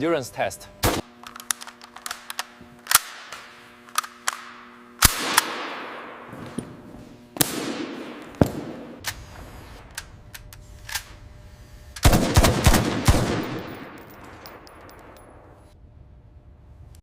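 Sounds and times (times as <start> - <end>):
rifle shots with echo: 5.0 - 6.3, 7.4 - 9.0, 12.0 - 15.5.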